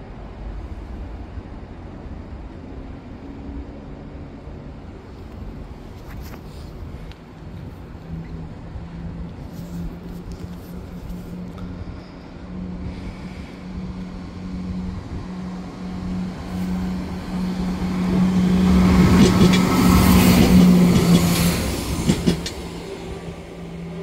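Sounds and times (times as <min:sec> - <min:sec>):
train running past: 0:00.0 - 0:24.0
wheels clacking over rail joints: 0:16.8 - 0:24.0.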